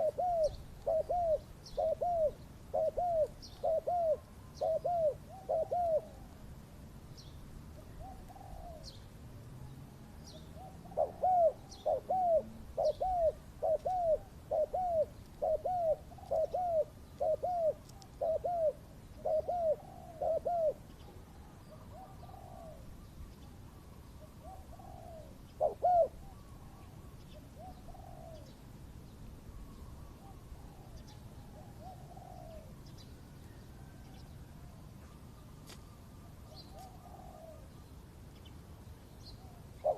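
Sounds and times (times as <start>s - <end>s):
small birds chirping: 0.0s - 6.4s, 7.1s - 31.3s
dove cooing: 0.0s - 6.5s, 7.8s - 9.0s, 10.6s - 28.6s, 29.5s - 33.0s, 36.2s - 37.7s, 39.4s - 39.9s.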